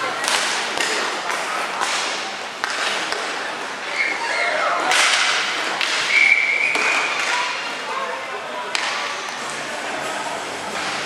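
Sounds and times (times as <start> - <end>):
hockey sticks and puck clacking: 0.1 - 4.2, 4.8 - 7.6, 8.7 - 9.6.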